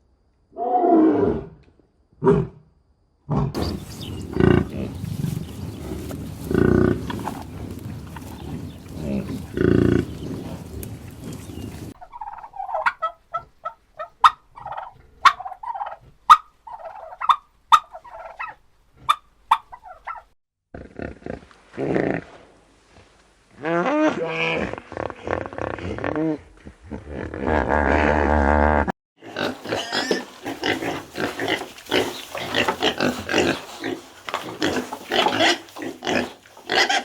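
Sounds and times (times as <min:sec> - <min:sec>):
low animal calls: 0:03.3 - 0:13.5
quick poultry calls: 0:03.6 - 0:20.3.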